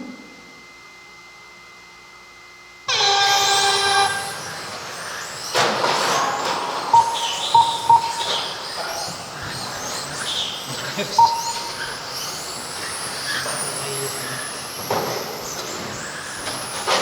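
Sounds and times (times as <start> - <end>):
toy car motors whining: 2.9 - 17.0
start tone: 6.1 - 9.9, 11.1 - 14.2
short beeps: 6.9 - 8.6, 11.2 - 12.0.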